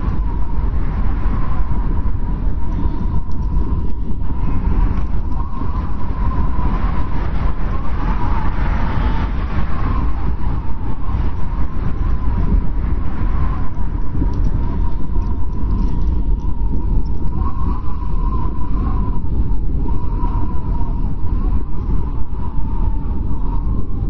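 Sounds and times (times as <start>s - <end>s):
strong wind rumbling and whistling: 0.0s - 24.0s.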